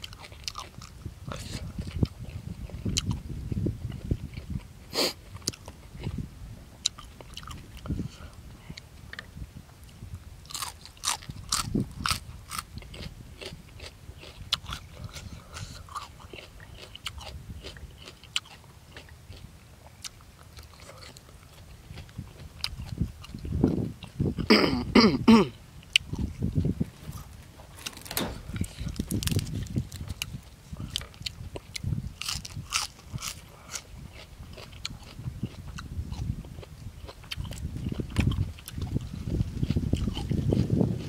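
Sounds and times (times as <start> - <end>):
wet chewing: 0.0 - 6.2, 6.8 - 8.1, 9.9 - 24.6, 25.8 - 41.0
crisp crunches: 26.1 - 35.2.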